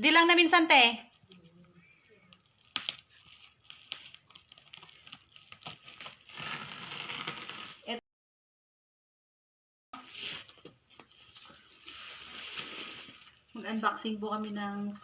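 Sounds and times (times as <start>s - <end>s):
packaging crinkling: 2.3s - 7.8s.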